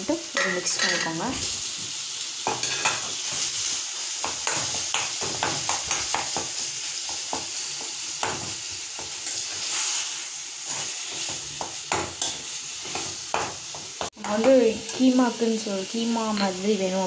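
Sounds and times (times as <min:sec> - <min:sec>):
meat sizzling in hot oil: 0:00.0 - 0:17.0
steel spoon scraping a pan: 0:02.4 - 0:06.6, 0:07.6 - 0:15.2.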